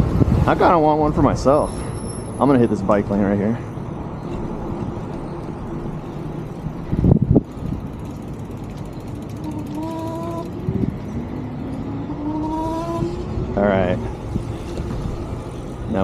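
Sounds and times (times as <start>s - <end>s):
wind and tyre noise: 0.0s - 16.0s
bicycle freewheel ticking: 6.4s - 11.7s.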